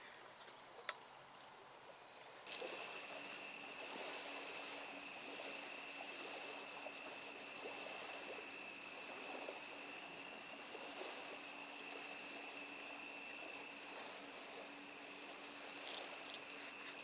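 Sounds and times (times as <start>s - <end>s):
soft hiss: 0.0s - 17.0s
high-pitched insect drone: 2.5s - 17.0s
faint ticks: 15.4s - 17.0s.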